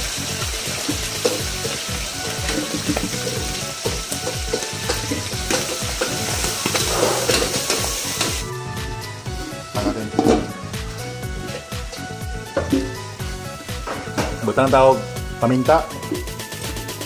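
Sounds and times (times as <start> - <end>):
garlic sizzling in oil: 0.0 - 15.3
spatula stirring against wok: 0.6 - 8.4.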